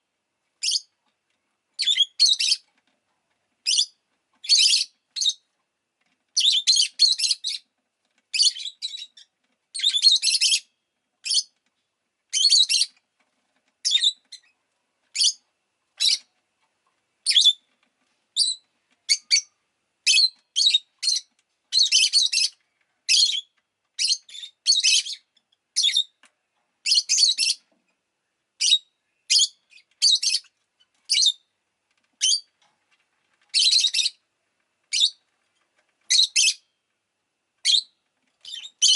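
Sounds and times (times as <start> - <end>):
lovebird chirping: 0.6 - 0.9, 1.8 - 2.6, 3.6 - 5.4, 6.4 - 7.6, 8.3 - 11.5, 12.3 - 13.0, 13.8 - 15.4, 17.2 - 17.7, 18.4 - 26.2, 26.8 - 27.6, 28.6 - 31.5, 32.2 - 32.6, 33.5 - 34.2, 34.9 - 35.2, 36.1 - 36.8, 37.6 - 38.9.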